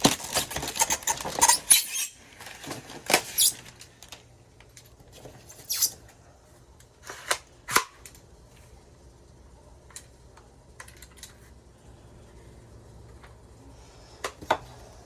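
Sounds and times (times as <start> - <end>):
tape tearing rasp: 0.0 - 2.2, 3.1 - 3.6.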